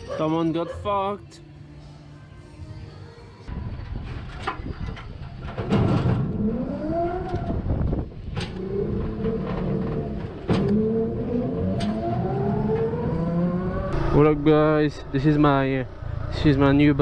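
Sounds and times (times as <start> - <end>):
vehicle engine accelerating: 6.0 - 17.0.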